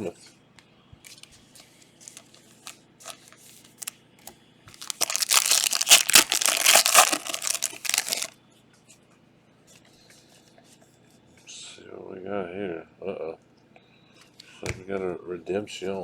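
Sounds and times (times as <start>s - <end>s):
plastic wrapper crinkling: 2.0s - 3.9s, 4.7s - 8.3s.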